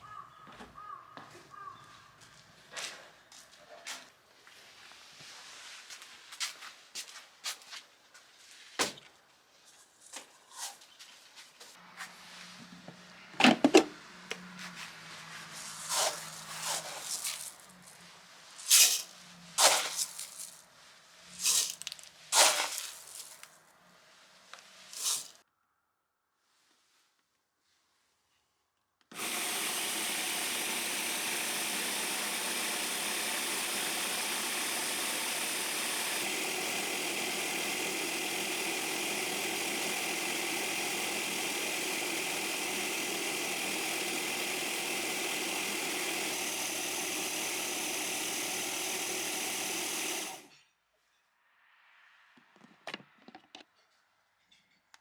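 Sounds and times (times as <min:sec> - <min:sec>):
small electric machine running: 0:15.8 - 0:17.6, 0:25.0 - 0:25.4, 0:29.1 - 0:50.5.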